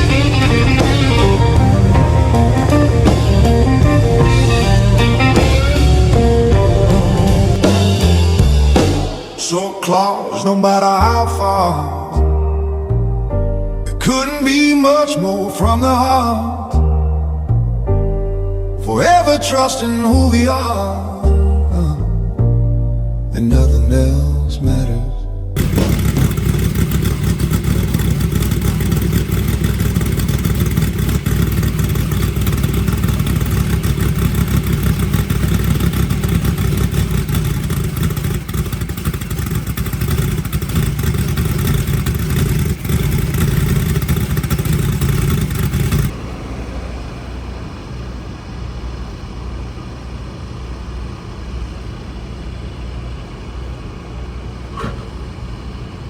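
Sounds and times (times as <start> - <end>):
race engine running: 0.0 - 10.1, 25.6 - 56.0.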